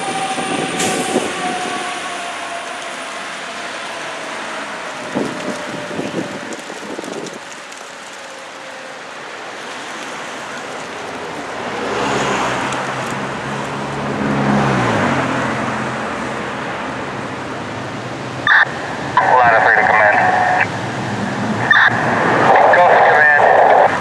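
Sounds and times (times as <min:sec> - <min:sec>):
vehicle driving past: 0:09.8 - 0:19.2.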